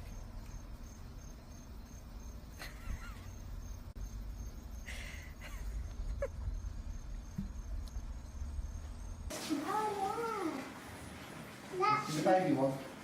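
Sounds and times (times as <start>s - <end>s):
cricket chirping: 0.0s - 9.3s.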